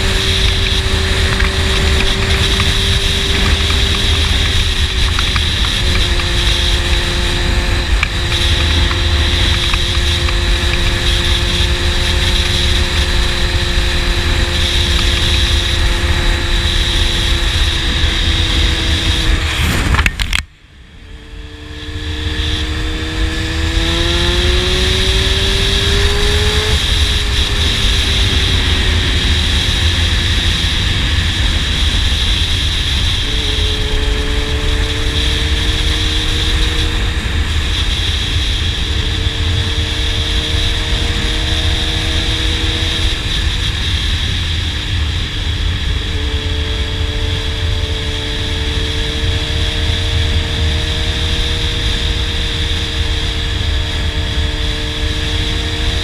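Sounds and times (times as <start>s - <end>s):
heavy wind rush: 0.0s - 56.0s
motorcycle engine running: 0.0s - 56.0s.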